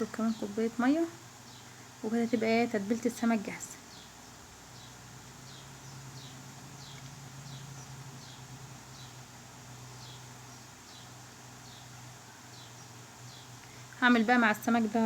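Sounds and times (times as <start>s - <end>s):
steady low hum: 0.0s - 15.0s
small bird chirping: 3.2s - 9.2s.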